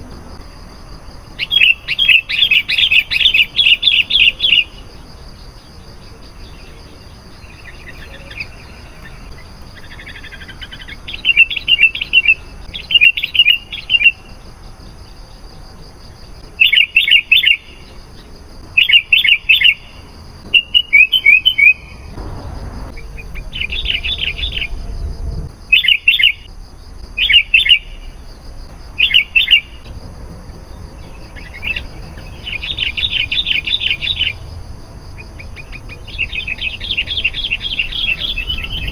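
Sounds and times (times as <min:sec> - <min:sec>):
birds chirping: 0:00.0 - 0:38.9
faint high whine: 0:21.5 - 0:34.5
low rumble: 0:22.0 - 0:27.2.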